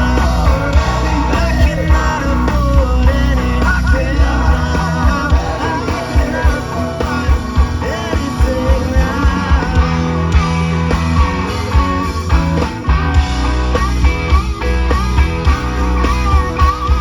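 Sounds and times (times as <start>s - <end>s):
person singing: 0.0s - 10.5s
bass guitar: 0.0s - 17.0s
drum beat: 0.0s - 17.0s
electric guitar: 0.0s - 17.0s.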